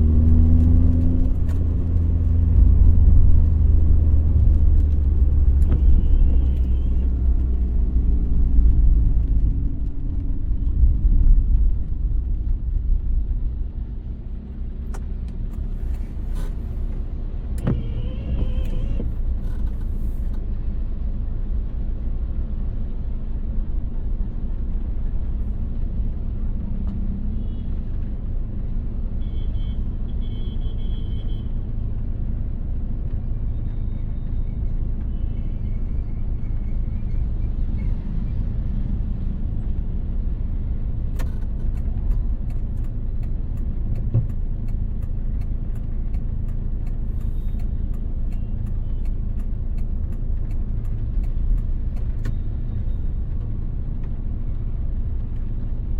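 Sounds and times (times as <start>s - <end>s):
car engine and road rumble: 0.0s - 55.9s
light sharp ticks: 41.0s - 55.9s.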